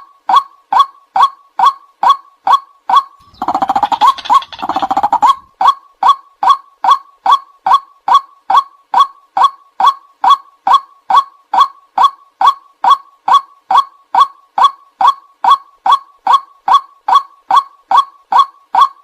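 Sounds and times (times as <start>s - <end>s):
waterhen calling: 3.2s - 5.5s.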